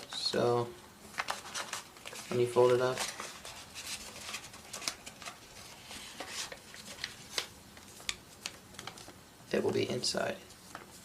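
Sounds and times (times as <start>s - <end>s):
paper being folded: 1.1s - 9.2s.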